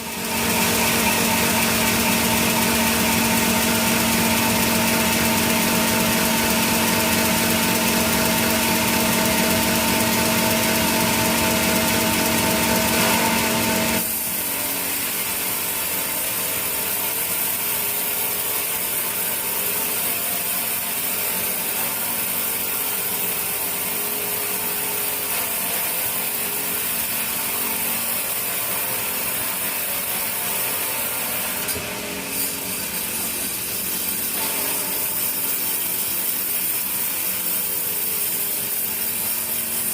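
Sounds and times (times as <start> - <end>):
saw hissing through wood: 0.0 - 39.9
sawmill machinery humming: 0.0 - 39.9.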